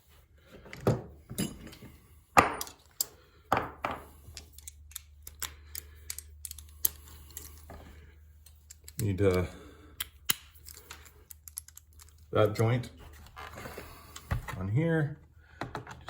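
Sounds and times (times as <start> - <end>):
metal parts knocking and clinking: 0.7 - 7.8, 8.4 - 12.7.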